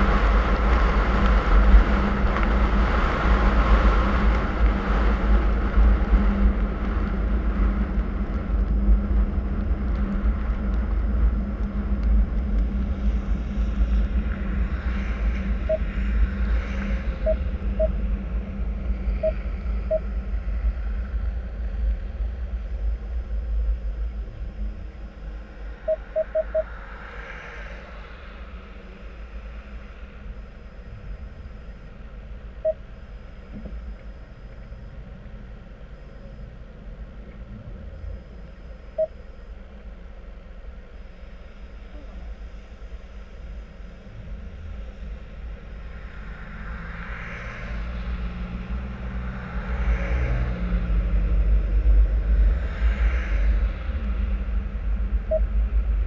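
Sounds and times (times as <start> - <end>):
road and engine rumble: 0.0 - 56.0
short high beeps: 25.8 - 26.7.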